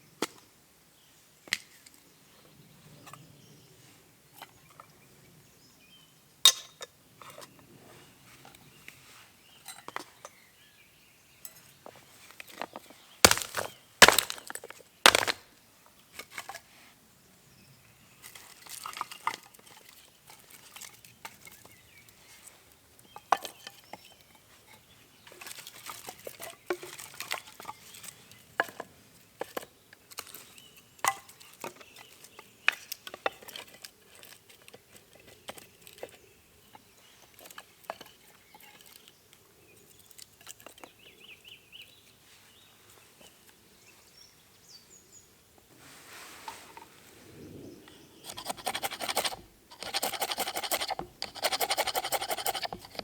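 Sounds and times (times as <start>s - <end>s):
rustling and crinkling: 13.3s - 15.4s, 45.7s - 47.2s
sharp knocks: 13.3s - 15.4s.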